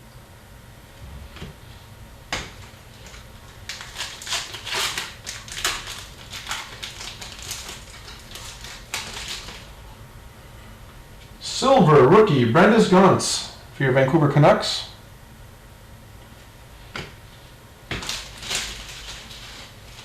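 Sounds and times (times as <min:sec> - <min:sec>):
cards crinkling and rustling: 0:02.4 - 0:09.7, 0:17.9 - 0:20.0.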